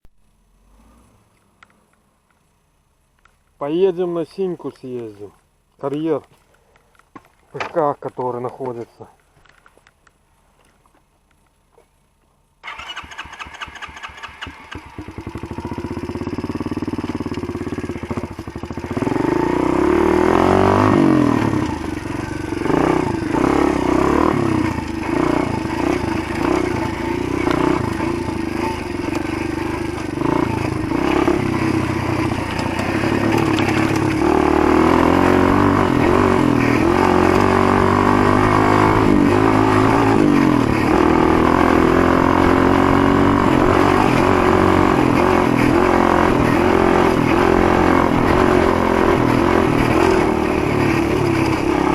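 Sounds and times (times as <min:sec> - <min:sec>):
motorbike engine starting and idling: 0:12.6 - 0:41.6
motorbike revving and riding off: 0:12.6 - 0:51.9.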